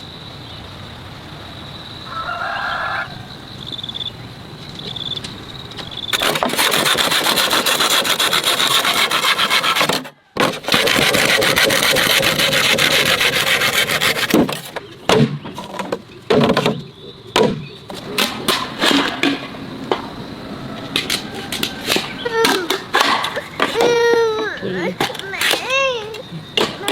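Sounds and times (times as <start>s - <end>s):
rasping scrape: 6.1s - 14.8s
irregular knocks and clatters: 14.2s - 20.1s.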